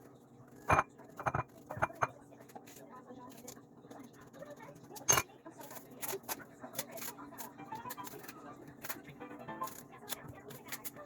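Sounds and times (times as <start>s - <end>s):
kitchen utensils clattering: 0.7s - 2.1s, 5.0s - 7.2s.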